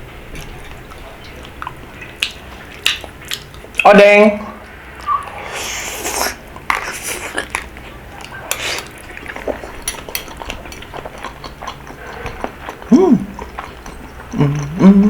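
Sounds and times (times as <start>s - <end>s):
wet stirring and slurping: 5.0s - 14.8s
utensils clicking against dish: 9.6s - 10.9s.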